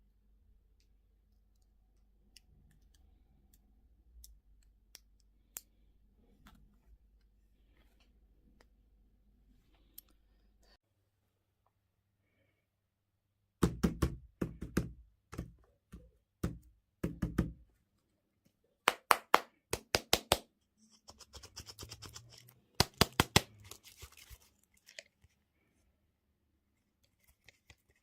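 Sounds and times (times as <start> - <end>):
packaging rustling: 23.5 - 25.3.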